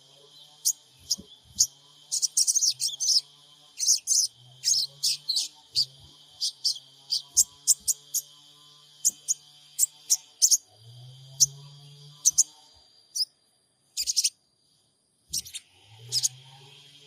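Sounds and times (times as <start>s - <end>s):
bird giving high chirps: 0.6s - 8.2s, 12.2s - 12.5s, 14.0s - 14.3s, 15.3s - 16.3s.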